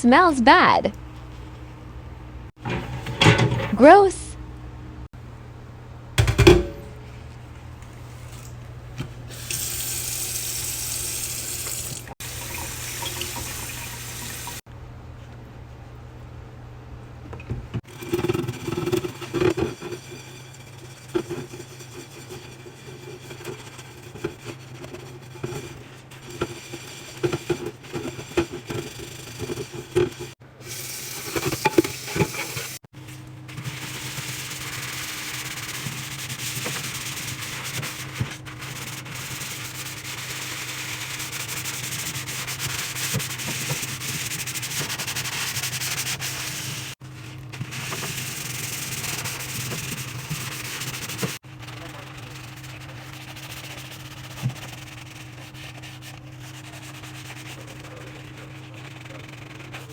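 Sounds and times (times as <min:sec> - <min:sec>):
scrubbing inside a microwave: 0:02.6 - 0:04.1, 0:17.8 - 0:59.9.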